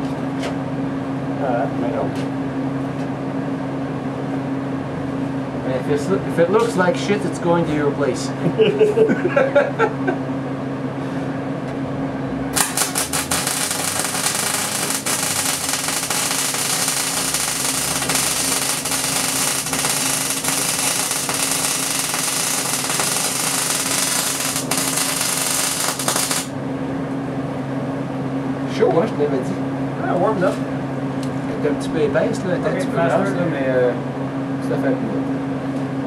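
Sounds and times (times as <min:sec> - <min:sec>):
welding arc crackling: 0:12.5 - 0:26.6.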